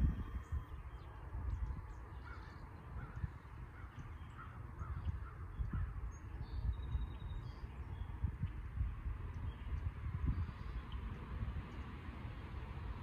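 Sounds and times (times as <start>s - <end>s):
low rumble: 0.0s - 2.3s
faint high bird chirps: 0.1s - 8.2s.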